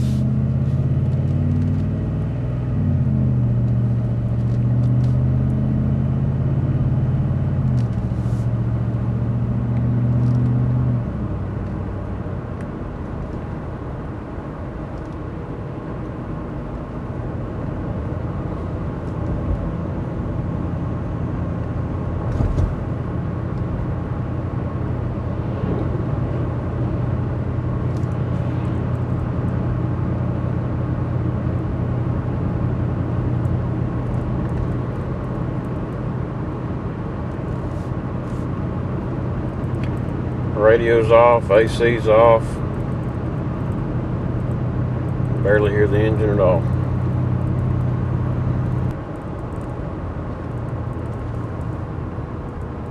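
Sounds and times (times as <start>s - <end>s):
low engine drone: 0.0s - 52.9s
tyre and wind road noise: 0.0s - 52.9s
short thump: 22.2s - 22.8s.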